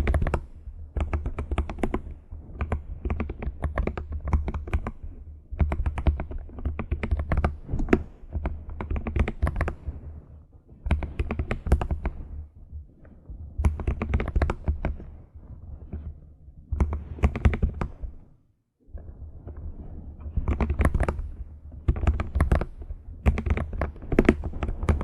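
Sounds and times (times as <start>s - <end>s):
keyboard typing clicks: 0.0s - 5.0s, 13.6s - 15.0s, 20.4s - 21.3s, 21.9s - 25.0s.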